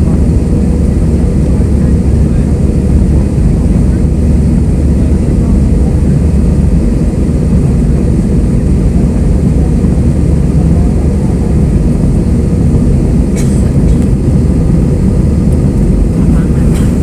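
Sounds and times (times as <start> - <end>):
jet engine cabin rumble: 0.0 - 17.0.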